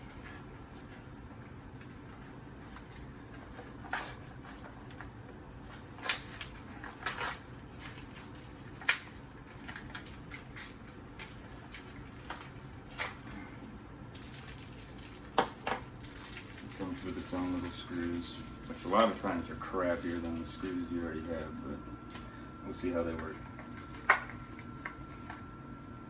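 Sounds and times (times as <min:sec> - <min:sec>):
packaging crackling and clicking: 0:05.7 - 0:13.5, 0:14.1 - 0:22.4.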